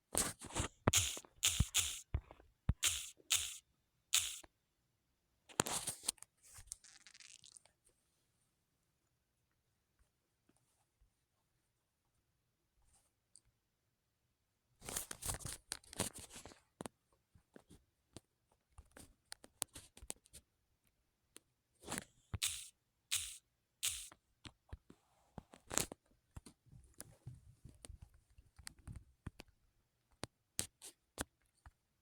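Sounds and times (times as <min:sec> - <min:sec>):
clicks and taps: 0:00.9 - 0:03.6, 0:04.2 - 0:04.4, 0:22.4 - 0:24.1.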